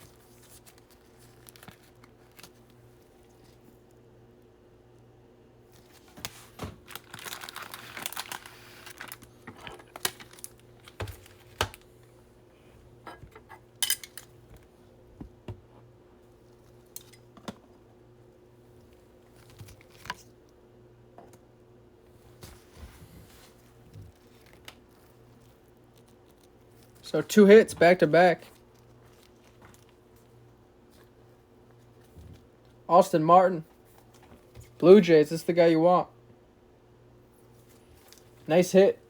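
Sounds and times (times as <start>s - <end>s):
plastic crinkling: 0.0s - 3.6s, 5.8s - 11.9s.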